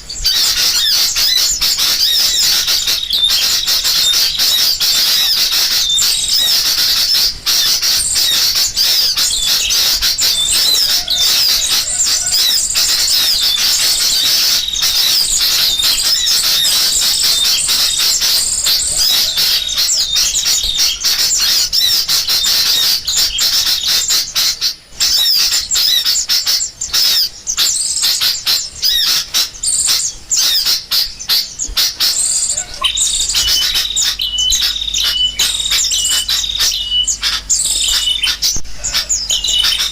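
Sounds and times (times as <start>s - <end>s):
bulbuls alarm chatter: 0.0s - 39.9s
small songbirds calling: 0.0s - 39.9s.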